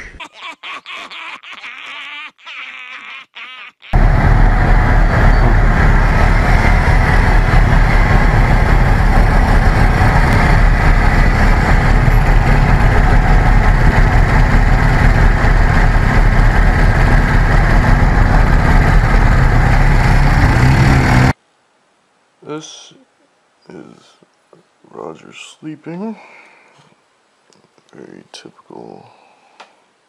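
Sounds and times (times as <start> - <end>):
motor scooter engines running: 4.0 - 21.4.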